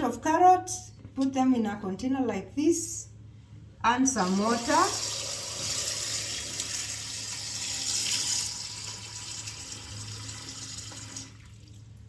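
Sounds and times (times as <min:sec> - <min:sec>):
water running into a container: 0:04.2 - 0:12.0.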